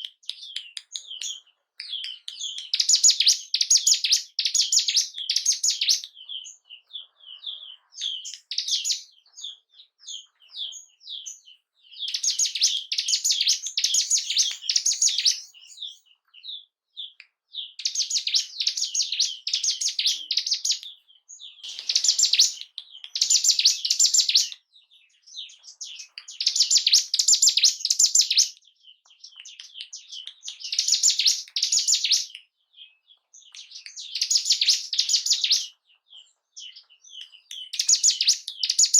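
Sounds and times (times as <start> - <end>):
bird chirps: 0.0 - 38.9
bird singing rapid high notes: 0.3 - 16.1, 17.6 - 24.6.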